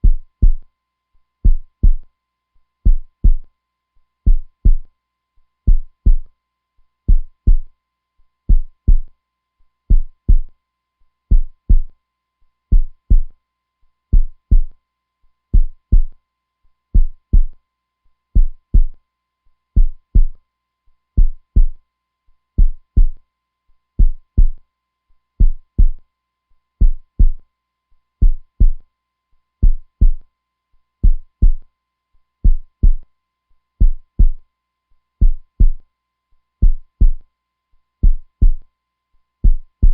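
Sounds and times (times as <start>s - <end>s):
heartbeat thuds: 0.0s - 0.6s, 1.4s - 2.0s, 2.9s - 3.4s, 4.3s - 4.8s, 5.7s - 6.3s, 7.1s - 7.7s, 8.5s - 9.1s, 9.9s - 10.5s, 11.3s - 11.9s, 12.7s - 13.3s, 14.1s - 14.7s, 15.6s - 16.1s, 17.0s - 17.5s, 18.4s - 18.9s, 19.8s - 20.4s, 21.2s - 21.8s, 22.6s - 23.2s, 24.0s - 24.6s, 25.4s - 26.0s, 26.8s - 27.4s, 28.2s - 28.8s, 29.6s - 30.2s, 31.0s - 31.6s, 32.4s - 33.0s, 33.8s - 34.4s, 35.2s - 35.8s, 36.6s - 37.2s, 38.0s - 38.6s, 39.4s - 39.9s.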